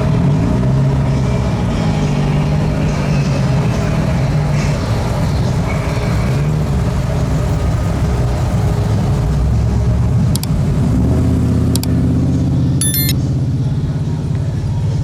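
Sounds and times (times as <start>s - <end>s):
car engines rumbling past: 0.0s - 15.0s
sharp clicks: 10.4s - 10.6s, 11.8s - 12.0s, 12.8s - 13.2s.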